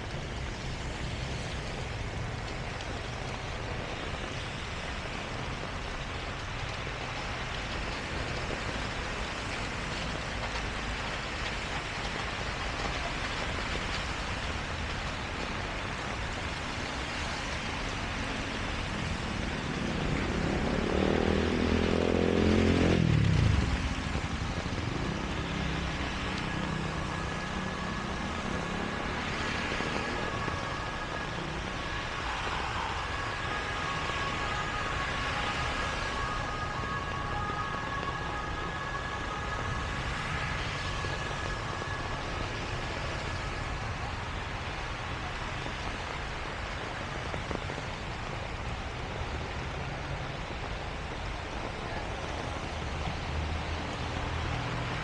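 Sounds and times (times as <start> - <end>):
heavy rain: 0.0 - 55.0
traffic noise: 0.0 - 55.0
vehicle passing close: 19.5 - 43.0.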